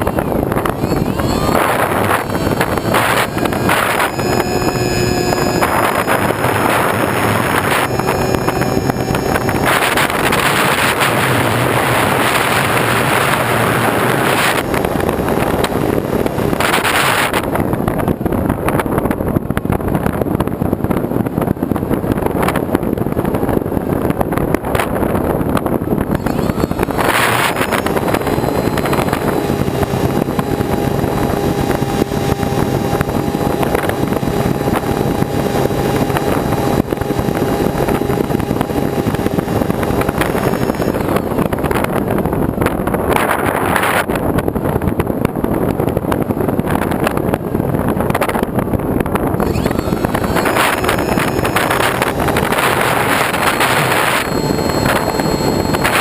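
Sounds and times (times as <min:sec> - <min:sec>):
faint engine hum: 0:00.0 - 0:20.4
wind and travel noise: 0:00.0 - 0:56.0.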